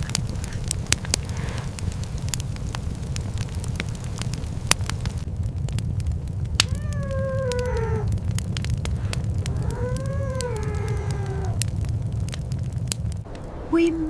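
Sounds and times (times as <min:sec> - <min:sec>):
crackling of sharp clicks: 0:00.0 - 0:13.6
low rumble: 0:00.0 - 0:14.0
weak whimpering cries: 0:06.6 - 0:08.2, 0:09.2 - 0:11.6.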